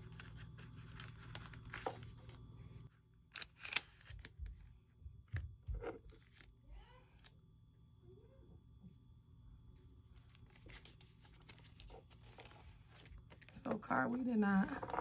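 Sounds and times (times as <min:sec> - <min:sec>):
paper rustling and crinkling: 0:00.0 - 0:02.4, 0:10.1 - 0:13.7
low steady hum: 0:00.0 - 0:15.0.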